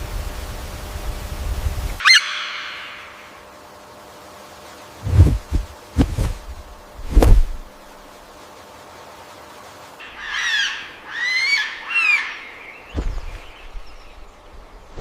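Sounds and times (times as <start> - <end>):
sharp high bird call: 2.0 - 3.6
loud low thumps: 5.0 - 7.7.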